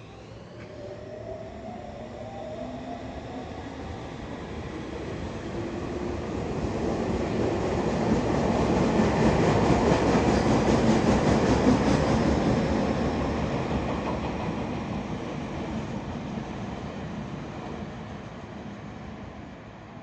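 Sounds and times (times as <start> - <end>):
electric train rumbling past: 0.0 - 20.0.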